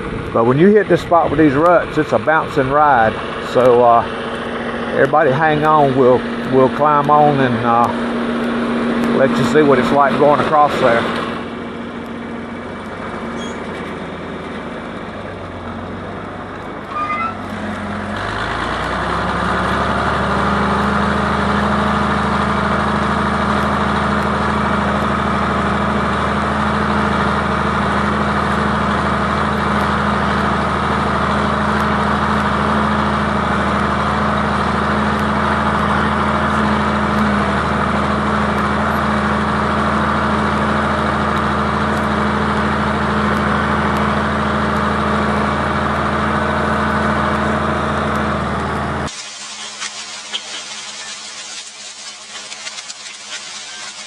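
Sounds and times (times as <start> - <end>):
tractor engine under load: 0.0 - 54.0.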